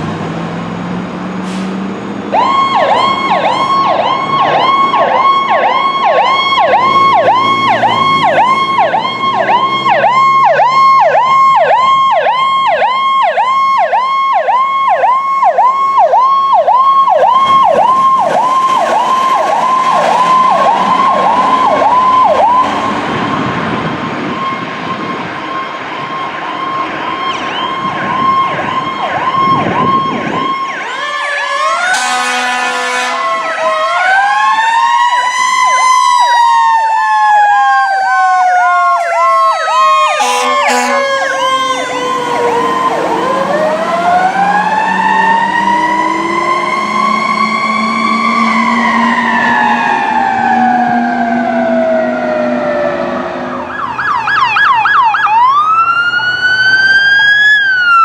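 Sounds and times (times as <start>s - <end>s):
electronic sirens warbling and yelping: 2.3s - 32.3s, 32.9s - 58.0s
mechanical siren wailing: 2.3s - 58.0s
horn blast: 31.9s - 33.4s, 40.1s - 42.4s.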